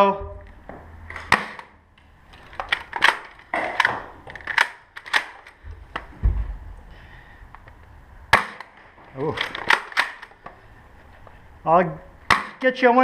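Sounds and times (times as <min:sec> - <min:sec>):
low thump: 0:06.2 - 0:06.7
foam dart blasters clacking: 0:12.2 - 0:12.7.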